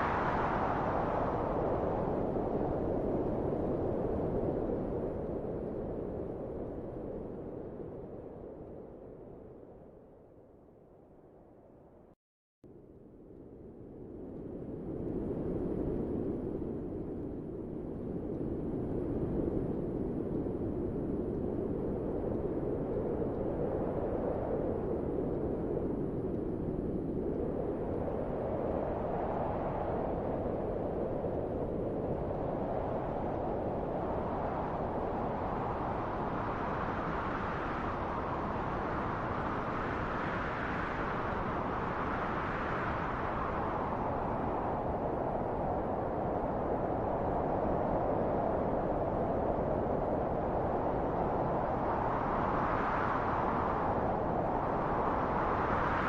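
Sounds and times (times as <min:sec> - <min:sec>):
low wind rushing: 0:13.5 - 0:56.0.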